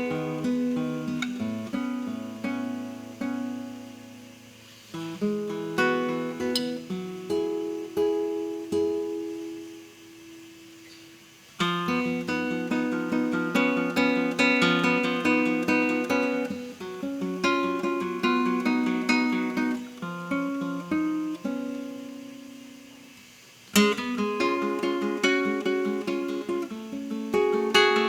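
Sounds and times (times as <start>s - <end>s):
acoustic guitar playing: 0.0s - 28.0s.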